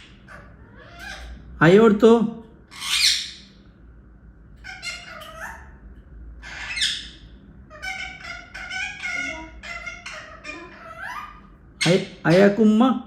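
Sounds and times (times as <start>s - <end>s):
parrot chattering calls: 0.0s - 1.6s, 2.6s - 3.6s, 4.6s - 12.6s
parrot screeching: 0.0s - 1.6s, 2.7s - 3.6s, 4.6s - 12.3s.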